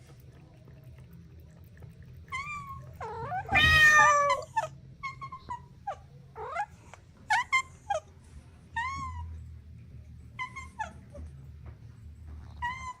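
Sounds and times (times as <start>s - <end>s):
kittens meowing: 2.3s - 8.0s.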